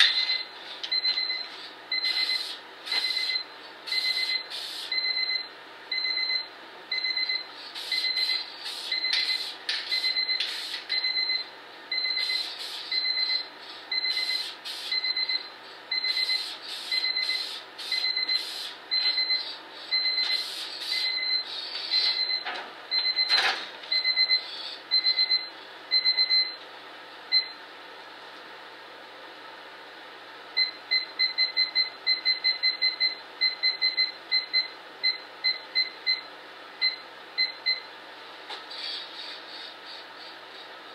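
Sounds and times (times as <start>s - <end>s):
high electronic beeping: 3.0s - 26.5s
spray paint can hissing: 10.4s - 10.8s.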